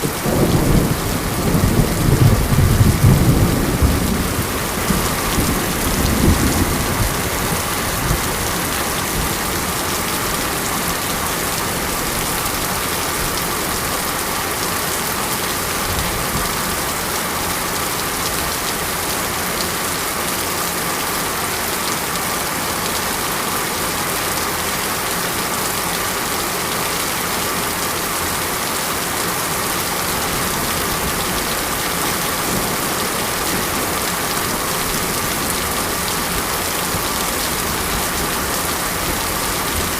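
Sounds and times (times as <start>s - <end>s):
heavy rain: 0.0s - 39.9s
low thunder rumble: 0.1s - 9.8s.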